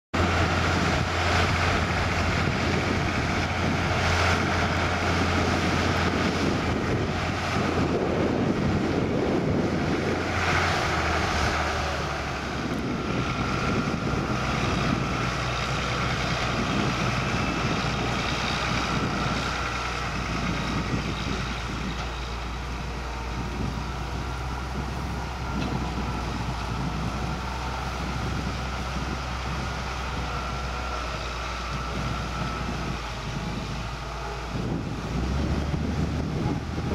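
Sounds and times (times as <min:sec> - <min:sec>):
tractor and harvester engines: 0:00.1 - 0:36.9
wind noise on microphone: 0:00.2 - 0:36.9.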